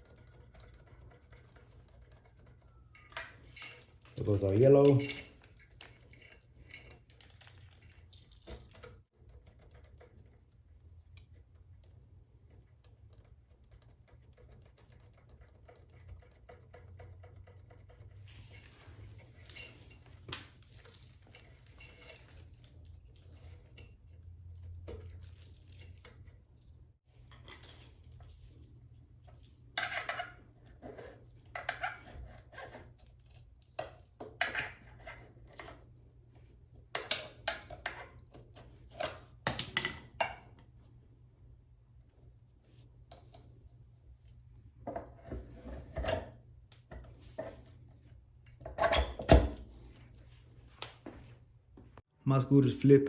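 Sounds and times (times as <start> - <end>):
wires rubbing and clicking: 0.0 - 36.5.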